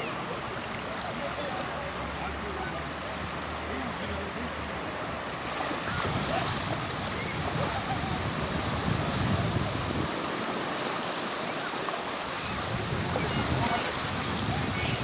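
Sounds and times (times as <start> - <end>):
sea water washing: 0.0 - 15.0
wind buffeting microphone: 4.9 - 15.0.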